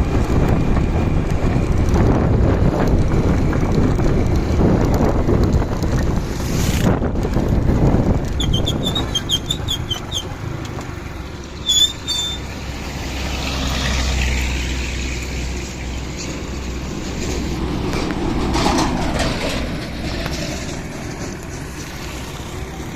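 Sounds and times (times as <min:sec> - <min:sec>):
wind on microphone: 0:00.0 - 0:10.2
motorcycle engine rumble: 0:00.0 - 0:22.9.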